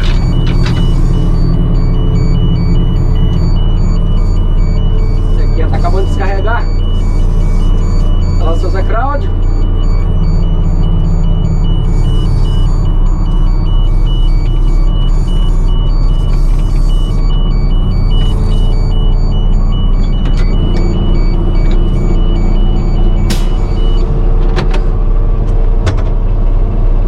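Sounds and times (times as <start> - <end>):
combine harvester engine drone: 0.0 - 27.0
sharp clicks: 23.2 - 23.8.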